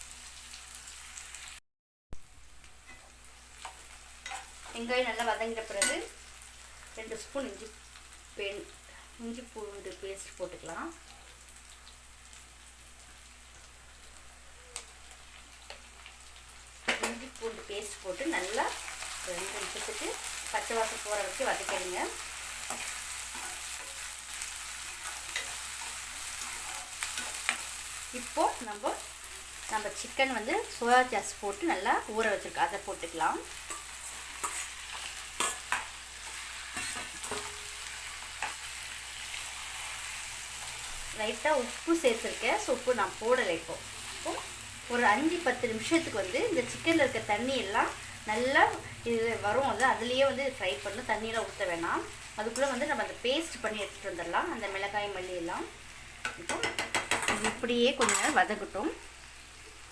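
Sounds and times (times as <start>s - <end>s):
onions sizzling in hot oil: 0.0s - 1.6s, 2.2s - 59.9s
spatula knocking against pan: 56.2s - 57.6s.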